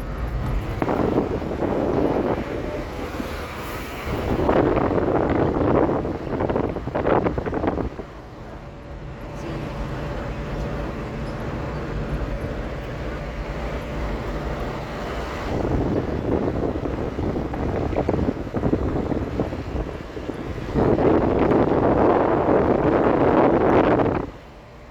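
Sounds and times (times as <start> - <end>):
car engine and road rumble: 0.0 - 24.9
wind buffeting microphone: 0.0 - 24.9.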